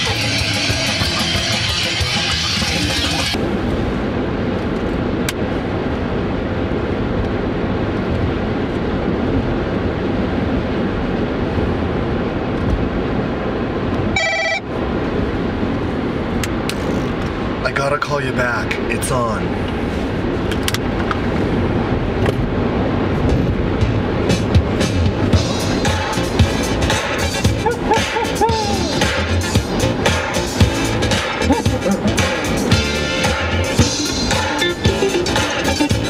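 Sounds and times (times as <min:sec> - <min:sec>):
heavy metal music in a car: 0:00.0 - 0:03.4, 0:23.0 - 0:36.0
road noise inside moving car: 0:00.0 - 0:36.0.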